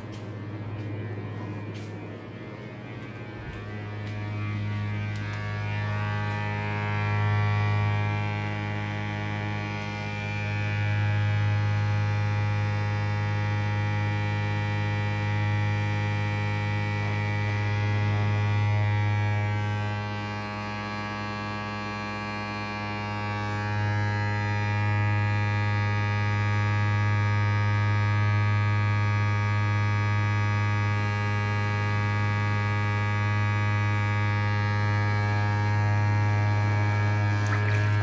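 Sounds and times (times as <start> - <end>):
appliance motor humming: 0.0 - 24.0, 32.6 - 38.0.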